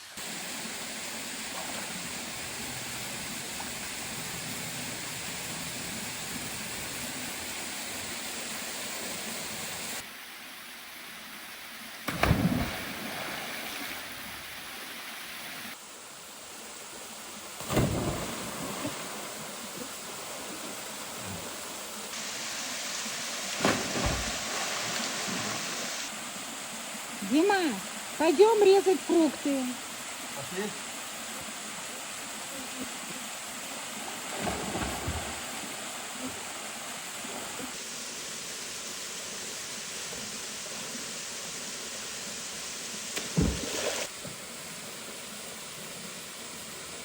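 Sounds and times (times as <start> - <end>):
falling water rushing: 17.7 - 29.6.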